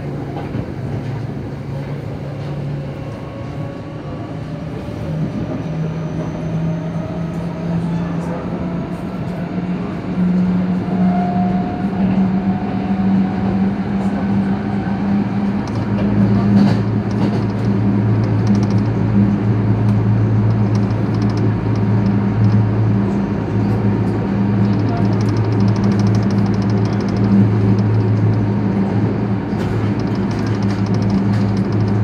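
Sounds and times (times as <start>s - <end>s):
train wheels rumbling on track: 0.0s - 32.0s.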